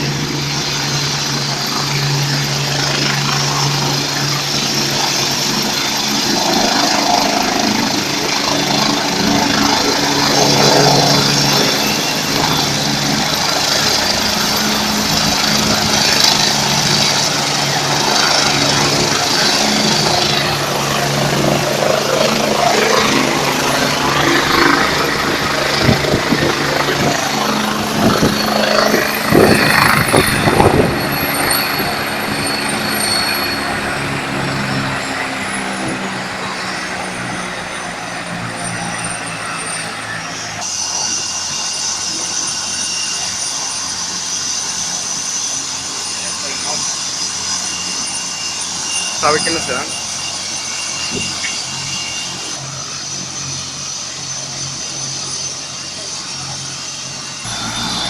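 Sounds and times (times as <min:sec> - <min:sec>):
helicopter rotor and engine drone: 0:00.0 - 0:58.0
high turbine whine: 0:00.0 - 0:58.0
loud buffets: 0:57.4 - 0:58.0.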